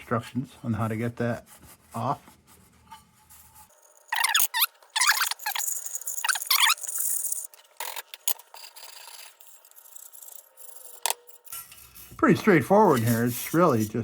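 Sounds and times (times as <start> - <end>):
lantern parts squeaky scraping: 3.6 - 14.0
quiet rubbing: 11.5 - 14.0.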